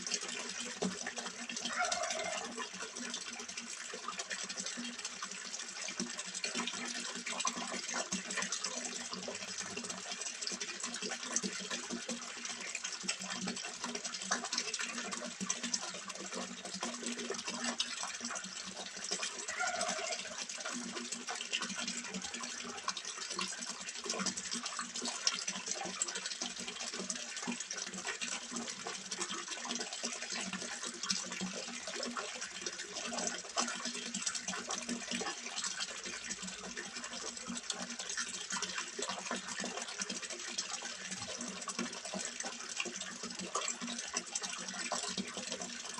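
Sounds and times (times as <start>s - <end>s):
water splashing into a pond: 0.0s - 45.9s.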